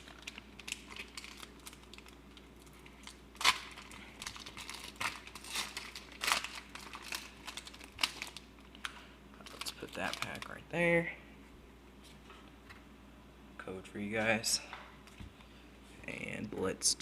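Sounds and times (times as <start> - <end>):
foil wrapper tearing: 0.0 - 8.8, 9.4 - 10.6
foil wrapper crinkling: 0.0 - 10.7.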